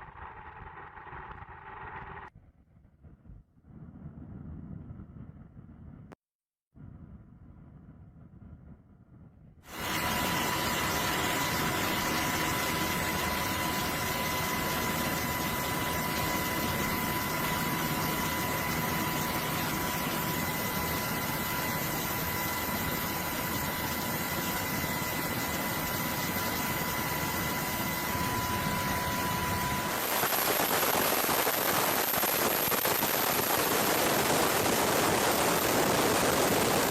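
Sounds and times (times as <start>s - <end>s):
machine noise with high whine: 9.7s - 36.9s.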